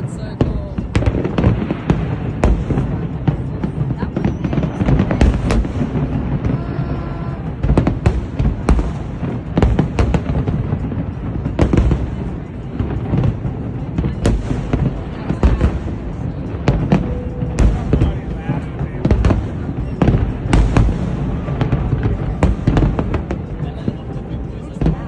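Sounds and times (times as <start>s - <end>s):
fireworks bangs: 0.0s - 25.0s.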